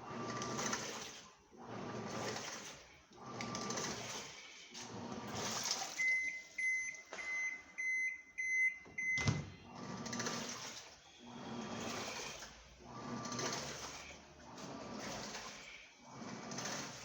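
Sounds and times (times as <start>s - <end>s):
washing machine churning water: 0.0s - 17.0s
short electronic beeps: 6.0s - 9.3s.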